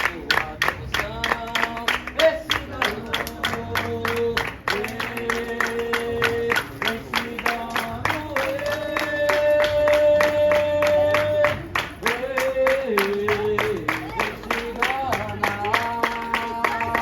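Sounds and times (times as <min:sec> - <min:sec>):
person singing festive song: 0:00.0 - 0:17.0
steady percussive beat: 0:00.0 - 0:17.0.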